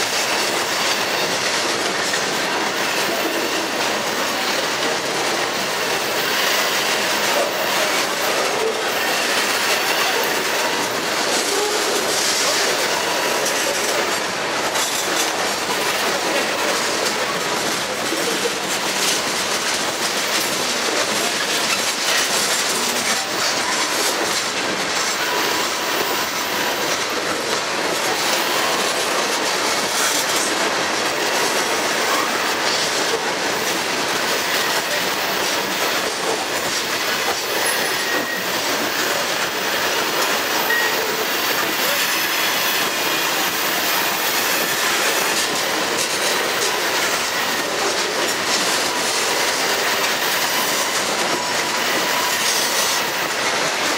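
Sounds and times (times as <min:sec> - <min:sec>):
freight train wheels rumbling: 0:00.0 - 0:53.9
faint high wheel squeals: 0:37.5 - 0:38.7.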